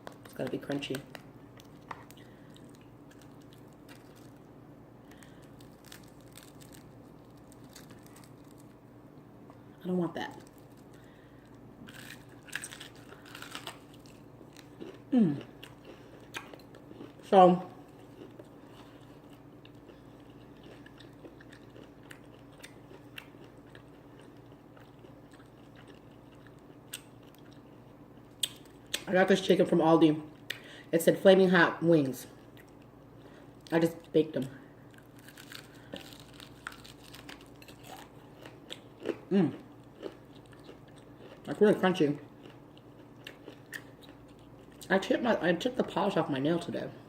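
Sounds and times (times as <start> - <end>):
crunchy chewing: 0.0 - 8.8, 10.3 - 29.1, 34.9 - 41.6, 42.2 - 44.9
low steady hum: 0.0 - 47.0.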